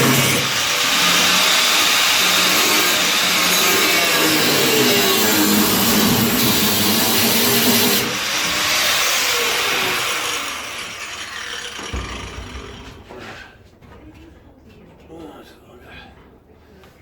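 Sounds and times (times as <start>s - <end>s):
angle grinder cutting steel: 0.0s - 12.9s.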